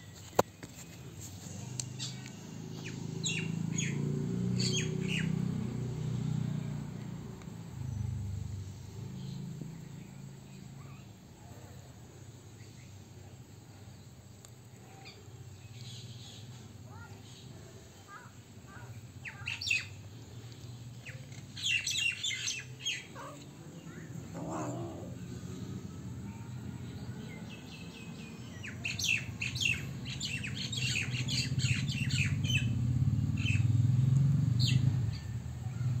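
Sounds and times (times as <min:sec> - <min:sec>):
small birds chirping: 0:00.1 - 0:11.3, 0:12.3 - 0:36.0.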